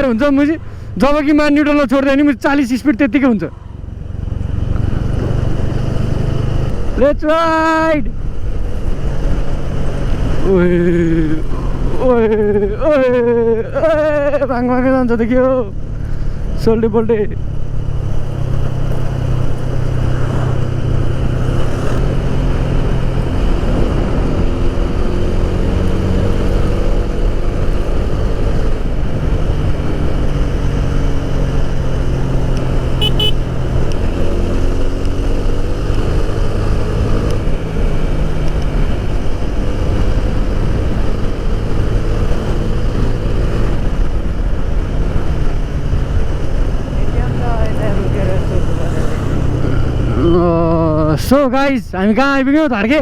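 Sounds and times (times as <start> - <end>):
wind rumble on camera: 3.7 - 16.6, 17.4 - 51.2
motorcycle engine running: 17.4 - 51.1
short horn beep: 33.0 - 33.5.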